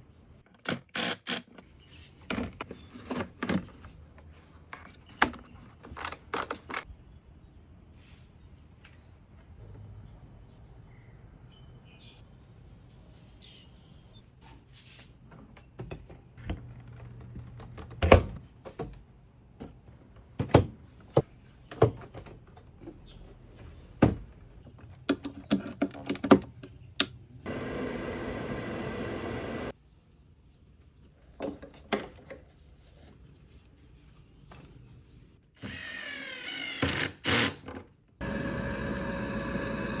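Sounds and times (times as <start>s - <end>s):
electric exhaust fan whine: 27.3s - 29.7s, 38.2s - 40.0s
motor running: 27.5s - 29.7s, 38.2s - 40.0s.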